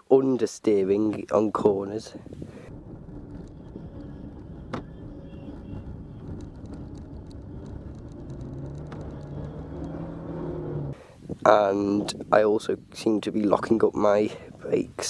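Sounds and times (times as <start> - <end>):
car engine and road noise: 2.0 - 12.2.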